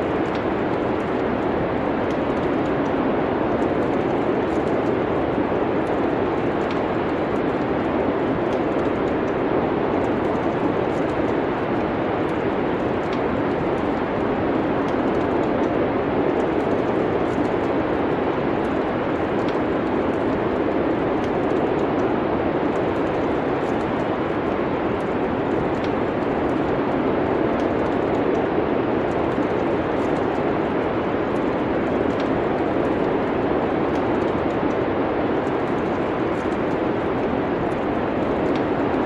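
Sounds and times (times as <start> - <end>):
rushing wind-like ambience: 0.0 - 39.0
wood fire crackles: 0.0 - 39.0.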